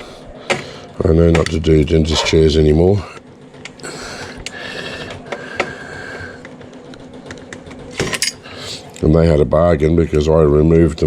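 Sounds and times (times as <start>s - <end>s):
faint mechanical whirring: 0.0s - 11.0s
metal parts clicking: 7.2s - 9.0s.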